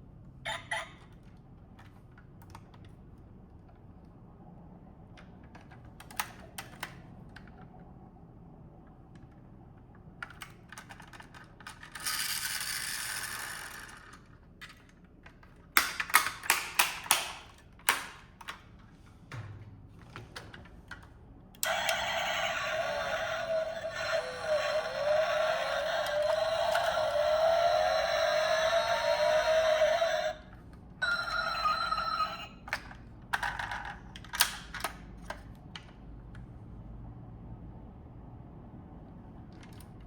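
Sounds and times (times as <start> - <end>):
small mechanical clicks and rattles: 10.2 - 18.6
running sound with wavering tone: 21.6 - 30.4.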